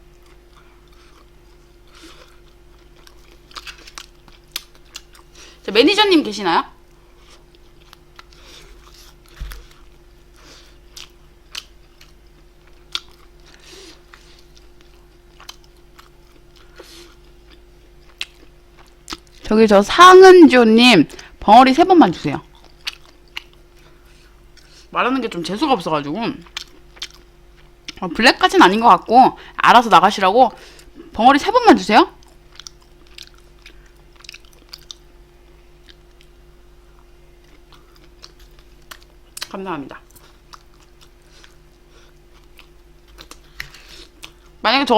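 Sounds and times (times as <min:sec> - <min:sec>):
faint steady hum: 0:00.0 - 0:44.9
chewing with wet mouth clicks: 0:00.1 - 0:05.3, 0:07.5 - 0:10.0, 0:10.9 - 0:19.4, 0:22.5 - 0:24.7, 0:26.4 - 0:28.0, 0:32.2 - 0:35.1, 0:35.8 - 0:44.6.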